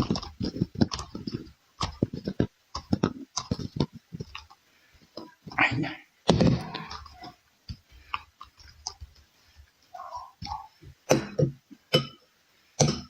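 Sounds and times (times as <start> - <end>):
chewing and smacking: 0.0 - 5.6.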